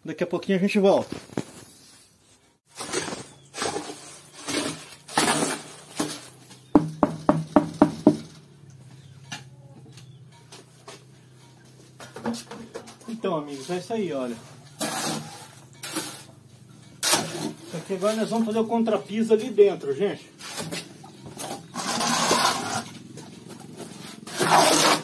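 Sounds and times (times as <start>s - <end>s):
scraping and rustling: 1.0s - 6.8s, 20.4s - 25.0s.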